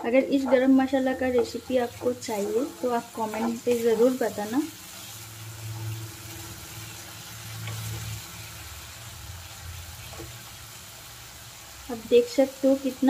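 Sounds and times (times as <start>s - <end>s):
paste sizzling in oil: 0.2s - 13.0s
wooden spatula scraping: 0.4s - 5.2s.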